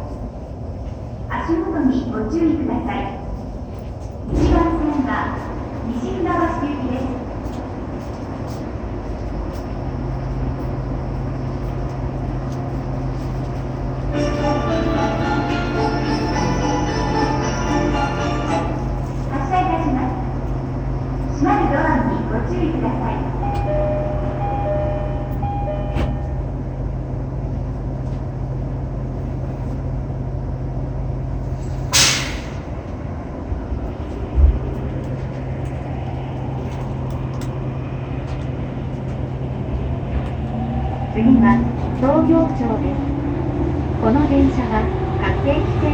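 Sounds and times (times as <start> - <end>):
train equipment hum: 0.0 - 45.9
station departure melody: 13.5 - 27.6
two-tone door chime: 23.4 - 26.6.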